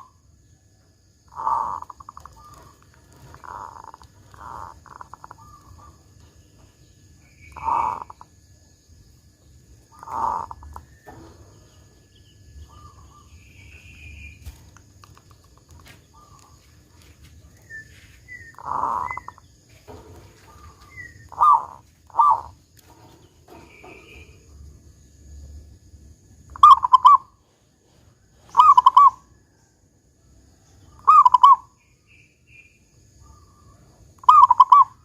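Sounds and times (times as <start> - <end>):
small birds chirping: 0.0 - 29.7, 30.5 - 35.0
dove cooing: 1.3 - 6.7, 7.4 - 8.3, 9.9 - 11.4, 17.6 - 24.4, 26.5 - 27.4, 28.4 - 29.3, 31.0 - 31.7, 34.2 - 35.0.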